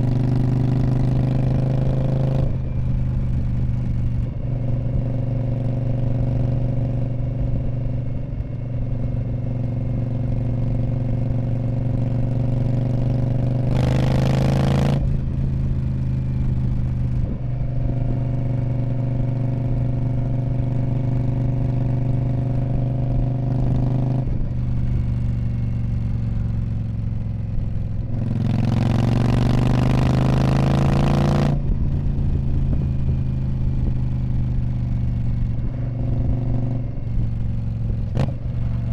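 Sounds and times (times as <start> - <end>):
motorcycle engine revving: 10.6 - 20.3, 21.1 - 38.9.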